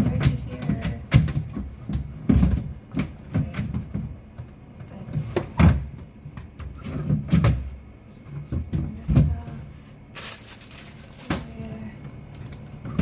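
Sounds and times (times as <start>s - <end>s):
refrigerator drawers knocking: 0.0s - 9.7s.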